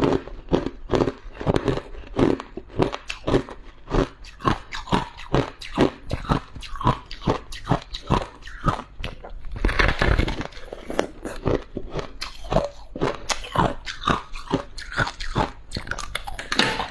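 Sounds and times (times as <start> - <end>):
chewing crunchy frost: 0.0 - 16.9.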